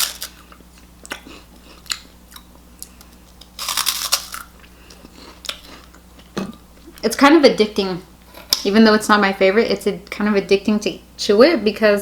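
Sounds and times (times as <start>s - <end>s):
crunchy snack chewing: 0.0s - 6.4s.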